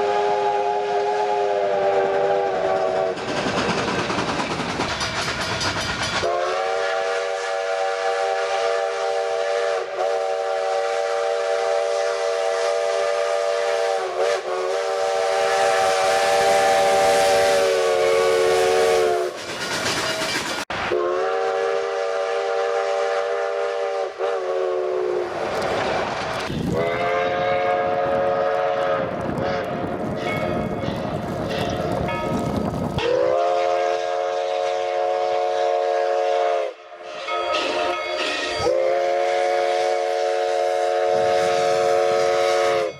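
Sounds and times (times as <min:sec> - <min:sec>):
steam locomotive chime whistle: 0:00.0 - 0:03.2, 0:05.1 - 0:25.7, 0:33.0 - 0:42.9
moving train hiss and rumble: 0:00.0 - 0:42.9.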